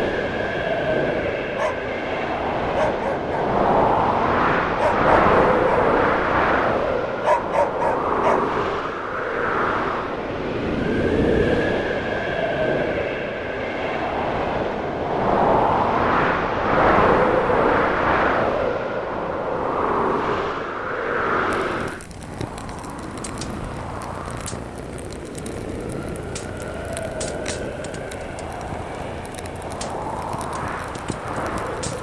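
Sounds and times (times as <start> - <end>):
wind gusting and howling: 0.0 - 32.0
faint whistling tone: 10.8 - 13.9
stove fire crackles: 21.5 - 32.0.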